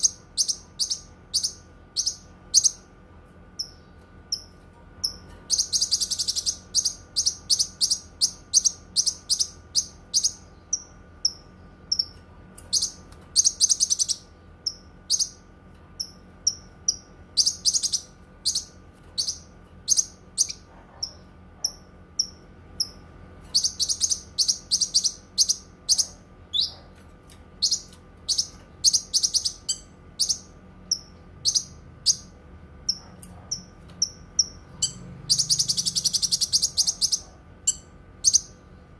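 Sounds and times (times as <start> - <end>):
faint steady hum: 0.0 - 38.9
bird singing sharp chirps and trills: 3.6 - 15.4, 34.0 - 38.6.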